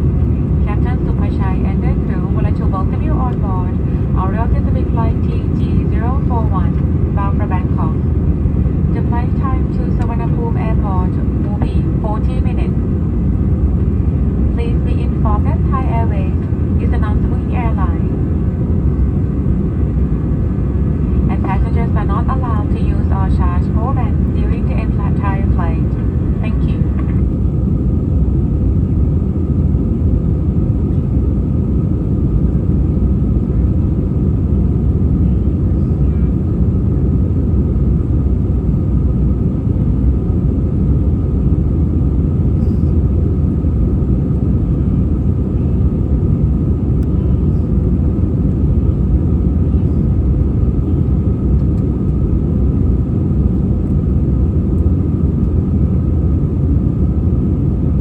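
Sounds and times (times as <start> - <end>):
faint steady whine: 0.0 - 31.2
aircraft cabin engine rumble: 0.0 - 58.0.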